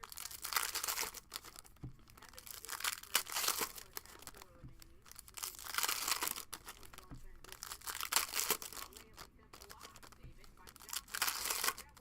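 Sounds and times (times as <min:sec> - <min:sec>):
wrappers tearing and crinkling: 0:00.0 - 0:12.0.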